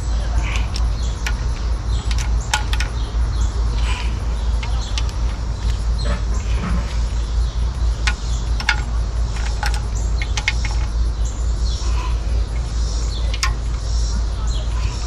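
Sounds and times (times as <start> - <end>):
low rumble: 0.0 - 15.0
sharp clicks and knocks: 0.5 - 11.0, 13.1 - 14.0.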